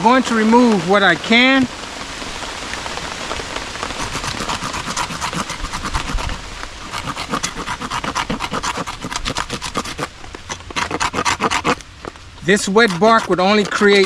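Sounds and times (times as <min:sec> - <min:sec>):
knife scraping bark off stick: 0:04.0 - 0:11.8, 0:12.5 - 0:14.0.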